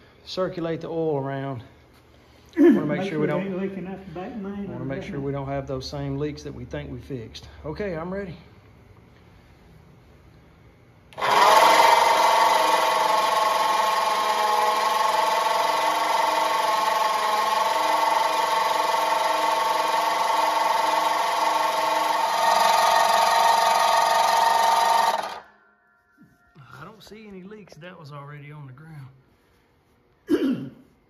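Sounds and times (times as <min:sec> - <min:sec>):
starter motor cranking engine: 0:11.2 - 0:25.5.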